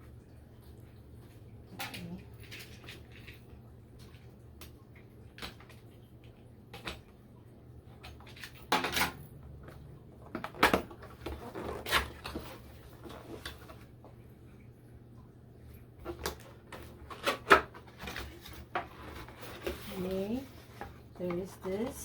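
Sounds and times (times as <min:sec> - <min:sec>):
scraping rustle: 0:16.8 - 0:21.5.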